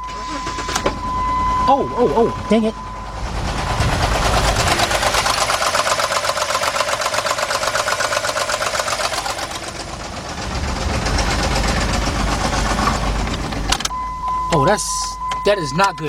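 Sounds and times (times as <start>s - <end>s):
engine knocking clatter: 3.0s - 13.9s.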